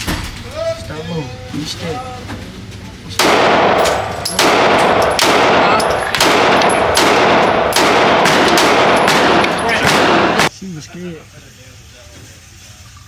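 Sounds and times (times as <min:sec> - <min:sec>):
pistol shots: 0:03.2 - 0:10.5.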